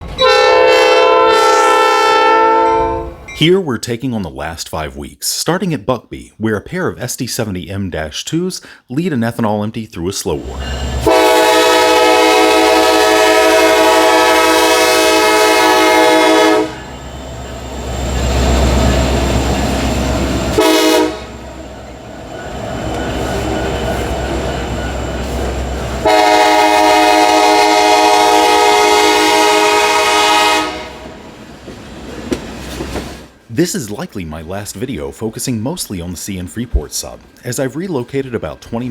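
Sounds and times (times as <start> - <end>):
diesel engines and train rumbling: 0.0 - 3.4, 10.2 - 38.9
locomotive air horn blasts: 0.1 - 3.1, 11.0 - 16.9, 20.5 - 21.5, 23.2 - 31.2.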